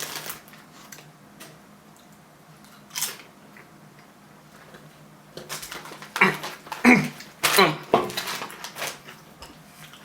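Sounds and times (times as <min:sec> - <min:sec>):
potato chip crunch: 0:00.0 - 0:01.1, 0:02.6 - 0:03.7, 0:05.5 - 0:09.3.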